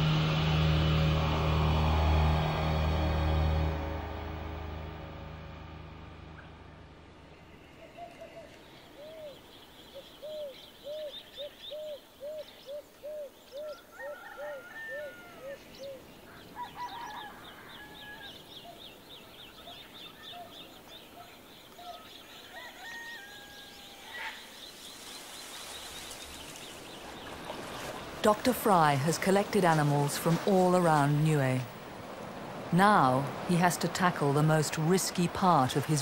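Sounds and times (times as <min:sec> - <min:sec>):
low rising and falling bird notes: 0:00.0 - 0:14.0.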